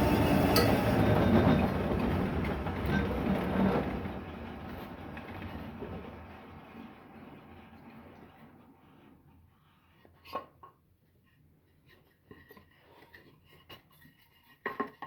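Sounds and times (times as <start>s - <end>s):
machine noise: 0.0s - 3.1s.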